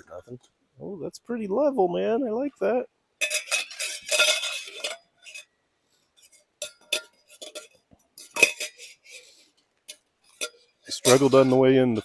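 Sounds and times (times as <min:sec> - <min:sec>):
cookware clinking and clattering: 0:03.2 - 0:05.5, 0:06.2 - 0:12.0.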